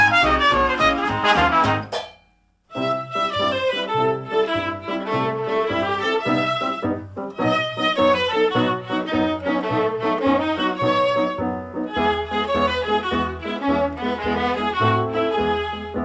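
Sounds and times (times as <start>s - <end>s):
bass line: 0.0s - 1.9s
violin melody: 0.0s - 1.9s, 2.7s - 16.0s.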